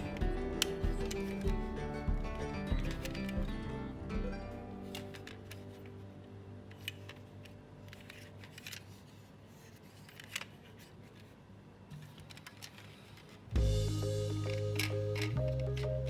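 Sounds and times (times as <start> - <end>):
music: 0.0 - 8.7, 13.6 - 16.0.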